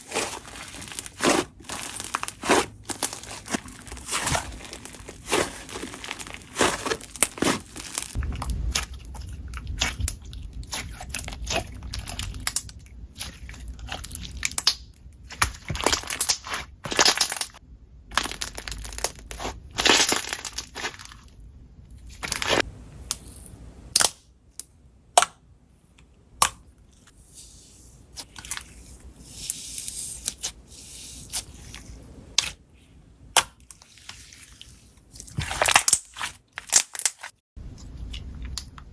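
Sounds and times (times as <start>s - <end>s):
slime crackling and popping: 0.0s - 21.1s, 35.4s - 37.3s.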